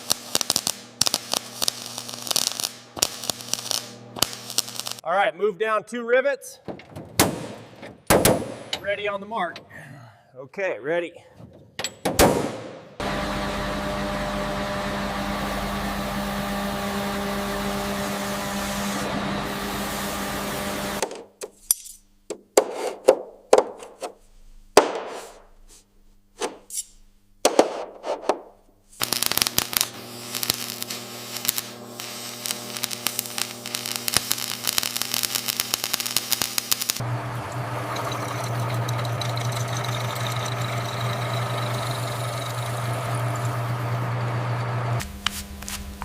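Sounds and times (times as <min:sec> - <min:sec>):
steady machine hum: 0:13.0 - 0:21.0, 0:29.0 - 0:35.8, 0:36.9 - 0:46.0.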